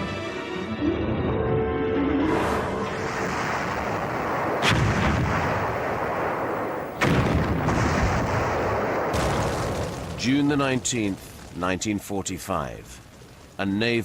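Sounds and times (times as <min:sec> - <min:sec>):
sharp blasts: 0:02.5 - 0:11.1
heavy gunfire and explosions: 0:02.5 - 0:12.1.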